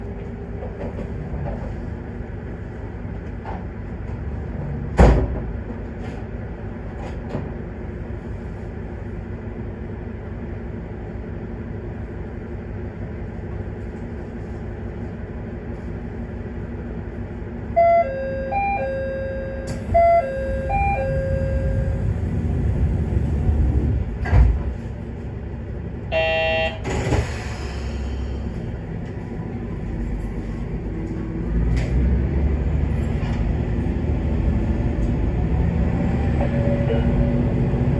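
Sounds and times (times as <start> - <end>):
diesel railcar engine running: 0.0 - 37.9
short buzzer tone: 26.1 - 26.9.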